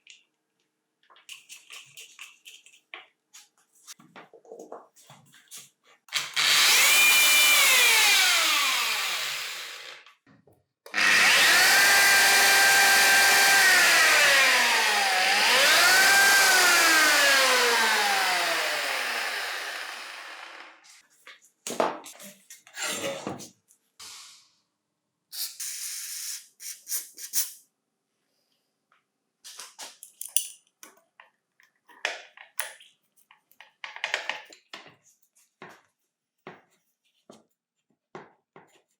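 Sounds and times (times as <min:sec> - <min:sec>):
power tool motor whining: 0:06.1 - 0:10.0, 0:10.9 - 0:20.8
tools clicking and knocking: 0:29.9 - 0:34.9.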